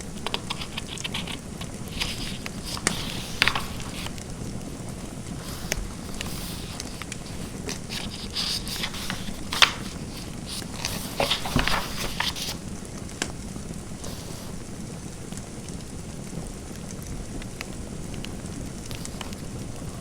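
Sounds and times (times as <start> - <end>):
fireplace crackling: 0.0 - 20.0
steady background hiss: 0.0 - 20.0
pen writing on paper: 0.2 - 3.9.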